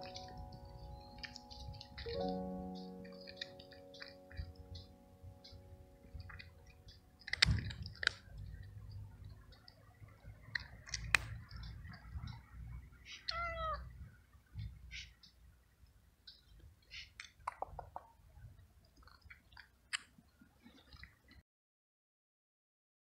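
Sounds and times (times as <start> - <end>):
cat crunching dry treats: 0.0 - 4.8, 6.2 - 8.9
cat meowing: 13.1 - 13.9.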